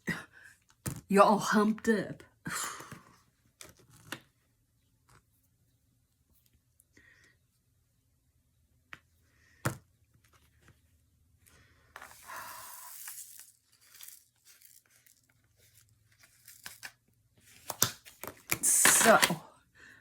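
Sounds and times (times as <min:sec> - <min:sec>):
small clicks and rustles: 0:10.1 - 0:18.5
plastic crinkling and tearing: 0:12.1 - 0:17.0.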